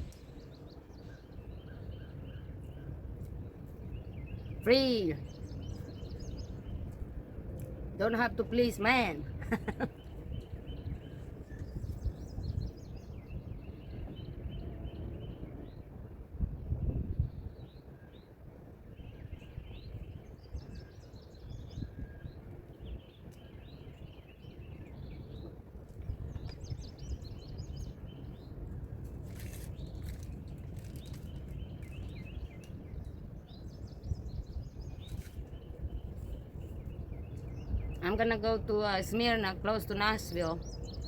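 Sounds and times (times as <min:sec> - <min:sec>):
small birds chirping and trilling: 0:00.0 - 0:15.9, 0:19.0 - 0:41.0
steady low rumble: 0:00.0 - 0:17.7.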